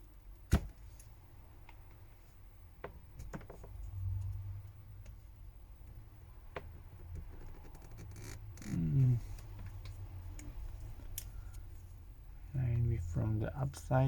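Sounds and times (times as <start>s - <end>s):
short falling vocal sound: 8.8s - 9.3s.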